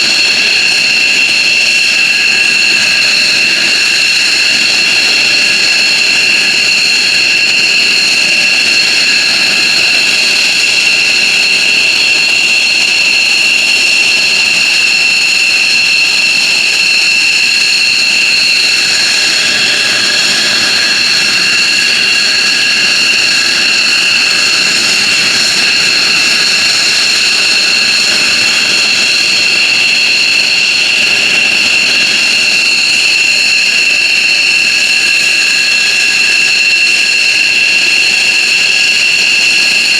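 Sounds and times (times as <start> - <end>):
jet engines whining: 0.0 - 39.9
jet noise rushing: 17.4 - 35.8.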